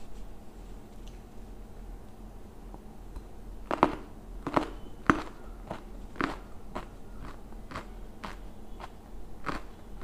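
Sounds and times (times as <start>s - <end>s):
chewing food: 3.7s - 10.0s.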